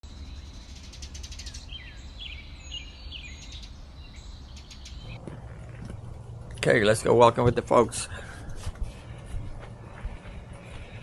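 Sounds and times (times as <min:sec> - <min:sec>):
small birds chirping: 0:00.0 - 0:11.0
low rumble: 0:03.7 - 0:11.0.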